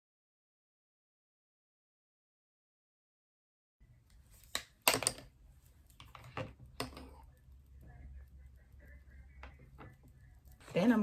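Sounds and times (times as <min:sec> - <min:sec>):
faint low hum: 0:03.8 - 0:11.0.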